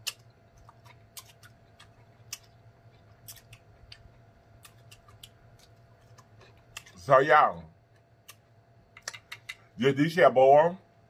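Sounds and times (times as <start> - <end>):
chewing with wet mouth clicks: 0.0 - 7.0.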